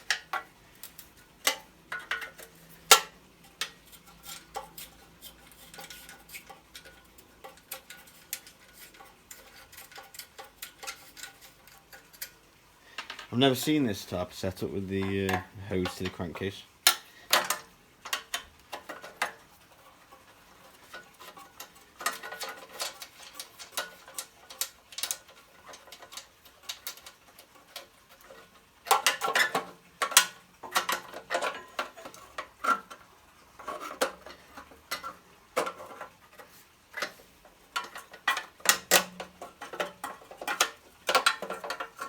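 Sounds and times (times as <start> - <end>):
metal tools clinking on metal: 13.0 - 16.6.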